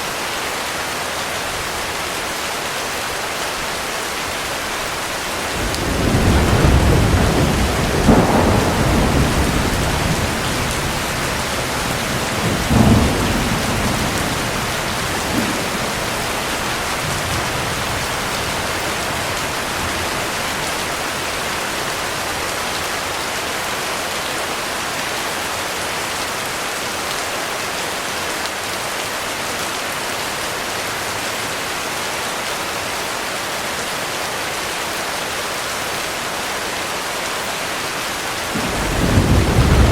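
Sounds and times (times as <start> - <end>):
heavy rain: 0.0 - 39.9
thunder rumbling and cracking: 5.4 - 22.6, 38.5 - 39.9.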